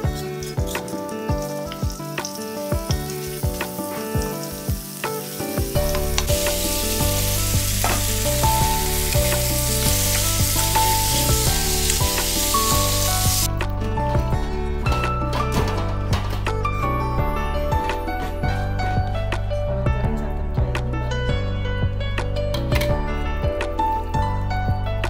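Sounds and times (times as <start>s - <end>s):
beans hissing in hot oil: 0.0s - 13.5s
paste sizzling in oil: 0.0s - 13.5s
background music: 0.0s - 25.0s.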